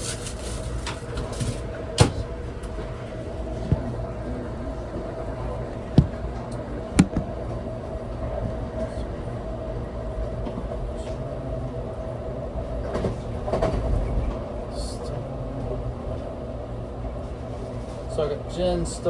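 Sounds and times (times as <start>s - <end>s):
steady hum: 0.0s - 19.0s
train rumble: 0.0s - 19.0s
sharp knocks: 5.9s - 6.3s, 7.0s - 7.3s.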